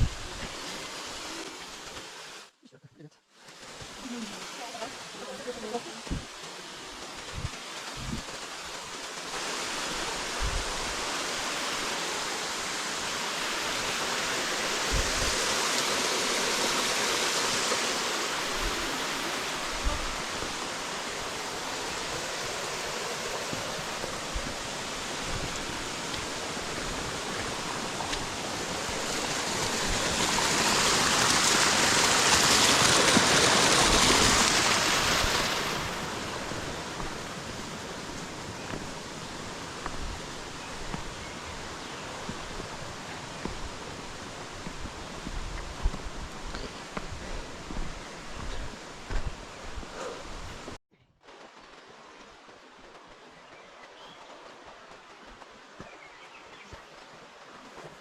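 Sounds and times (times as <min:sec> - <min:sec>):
river water rushing over rocks: 0:03.5 - 0:58.0.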